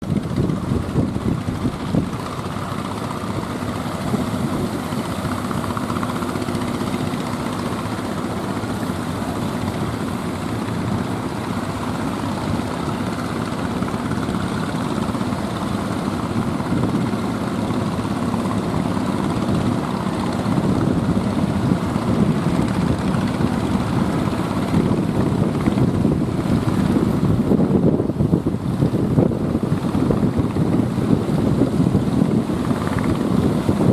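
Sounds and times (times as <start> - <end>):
ship engine droning: 0.0 - 33.9.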